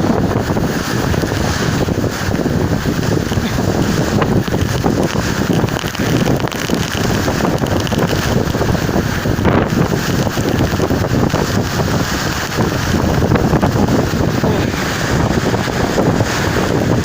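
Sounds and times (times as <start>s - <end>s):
storm wind buffeting microphone: 0.0s - 17.0s.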